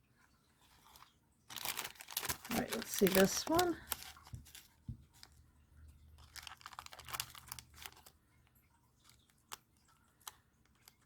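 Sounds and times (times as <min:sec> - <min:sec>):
plastic pouch crinkling: 0:00.6 - 0:05.4, 0:06.2 - 0:11.0.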